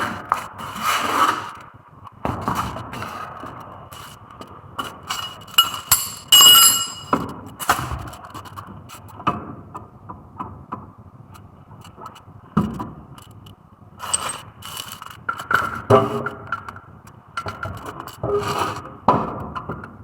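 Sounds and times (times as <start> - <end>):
metal tools clinking: 5.1 - 7.2, 14.1 - 14.4
metallic ring: 5.1 - 7.2, 14.1 - 14.4.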